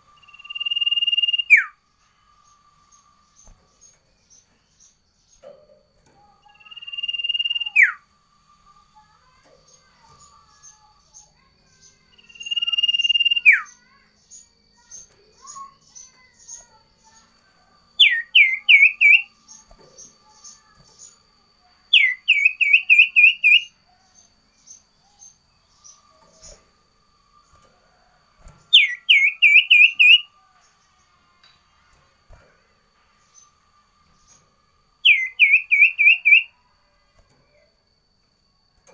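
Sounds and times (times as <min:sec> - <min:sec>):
songbird whistling song: 0:00.0 - 0:32.4, 0:33.0 - 0:38.9
faint high chips: 0:00.2 - 0:38.9.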